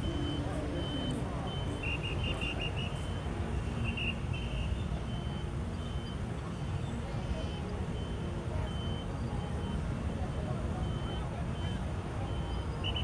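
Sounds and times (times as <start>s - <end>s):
chirping beeps: 0.0s - 3.2s, 8.0s - 9.8s
reversing alarm beeping: 0.0s - 13.0s
street traffic rumble: 0.0s - 13.0s.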